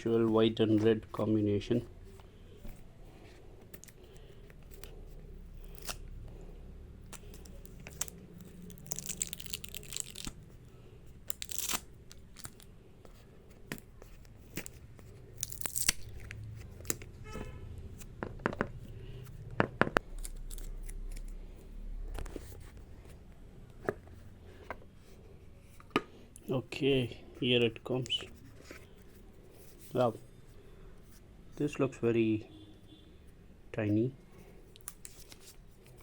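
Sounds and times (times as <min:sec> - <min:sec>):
packaging tearing: 0:05.6 - 0:06.1, 0:07.1 - 0:10.5, 0:11.2 - 0:12.7, 0:15.4 - 0:17.1, 0:20.0 - 0:21.4.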